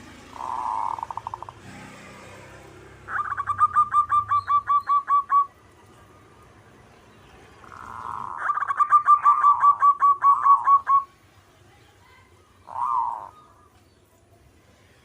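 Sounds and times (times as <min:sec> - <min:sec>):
dove cooing: 0:00.0 - 0:01.6, 0:03.0 - 0:05.5, 0:07.6 - 0:11.1, 0:12.6 - 0:13.6.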